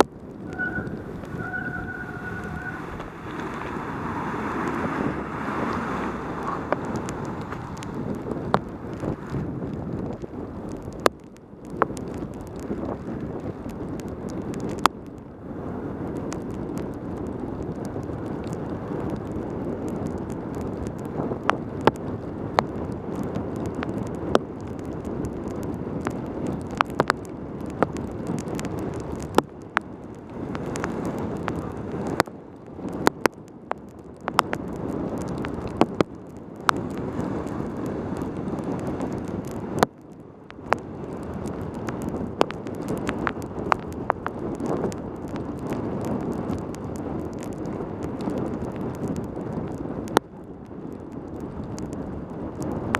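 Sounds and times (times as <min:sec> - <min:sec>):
tyre noise: 0:00.0 - 0:10.2
wind buffeting microphone: 0:00.0 - 0:52.9.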